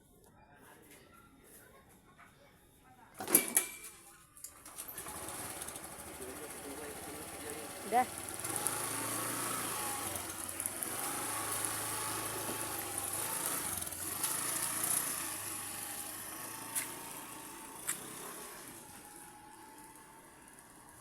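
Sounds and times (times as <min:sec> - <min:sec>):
engine hum with hiss: 0:05.0 - 0:21.0.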